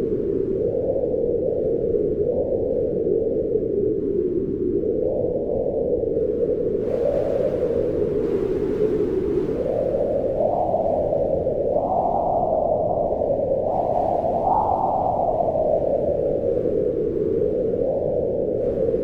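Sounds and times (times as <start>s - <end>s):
wind howling: 5.0s - 19.0s.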